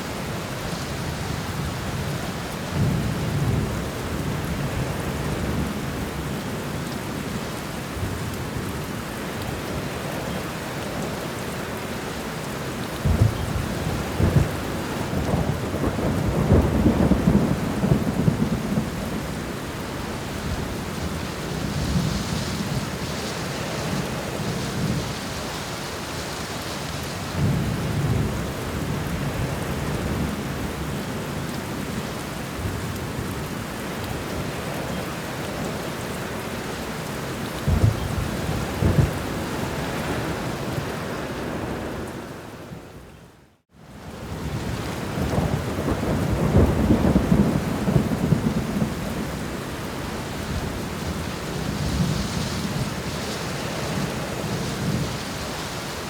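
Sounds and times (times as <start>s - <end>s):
steady rain: 0.0s - 56.0s
thunder rumbling: 13.0s - 25.4s, 37.6s - 42.6s, 44.2s - 55.8s
sharp thunder claps: 37.7s - 39.3s.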